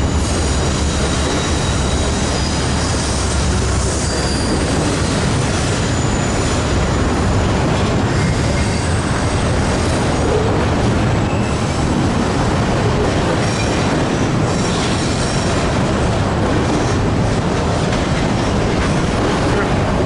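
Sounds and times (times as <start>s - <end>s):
high wheel squeal: 0.0s - 10.5s, 11.2s - 11.8s
freight train rumbling past: 0.0s - 20.0s.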